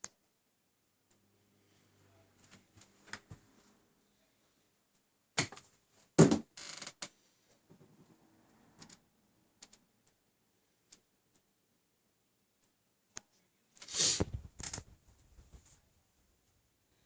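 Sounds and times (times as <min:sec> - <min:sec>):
faint clicks: 0:09.6 - 0:10.2, 0:10.8 - 0:11.5
short scrape or creak: 0:13.8 - 0:14.3.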